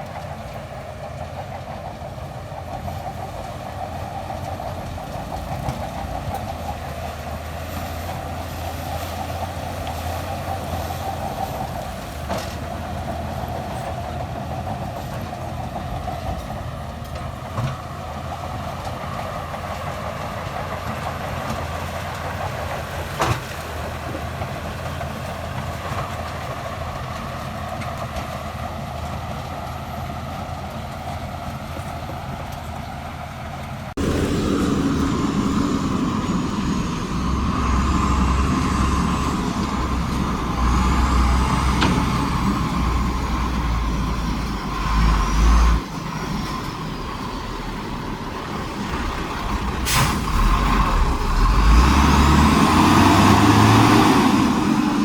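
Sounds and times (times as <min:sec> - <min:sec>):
diesel construction machinery running: 0:00.0 - 0:55.0
high whines: 0:34.0 - 0:45.4.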